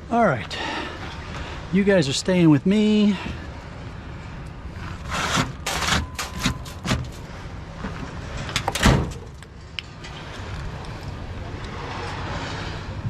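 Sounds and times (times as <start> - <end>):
scrap metal knocking and clattering: 5.0 - 7.3.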